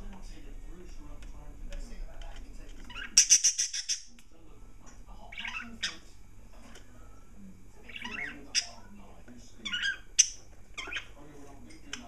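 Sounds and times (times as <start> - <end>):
budgerigars chirping: 2.8 - 4.2, 5.2 - 6.0, 7.8 - 8.9, 9.6 - 11.2.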